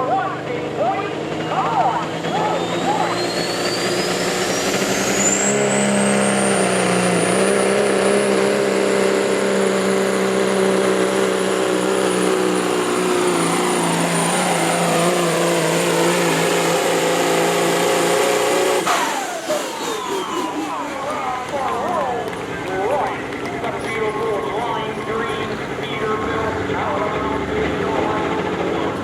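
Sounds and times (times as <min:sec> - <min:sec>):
engine running at full power: 0:00.0 - 0:29.0
high-pitched whine: 0:01.0 - 0:08.9, 0:11.7 - 0:22.0.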